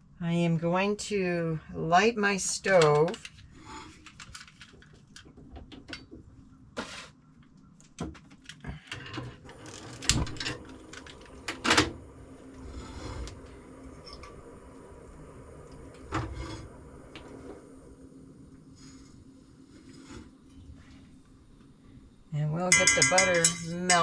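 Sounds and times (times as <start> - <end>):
gas burner hissing: 9.5 - 24.0
pan clattering: 22.7 - 24.0.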